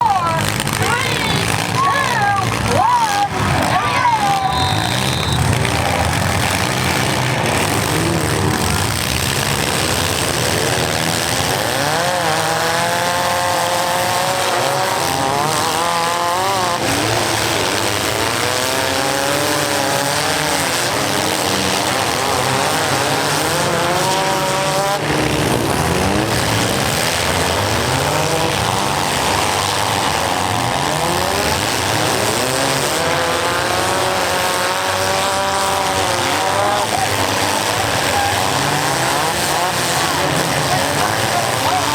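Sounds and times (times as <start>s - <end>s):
car engines revving: 0.0s - 41.9s.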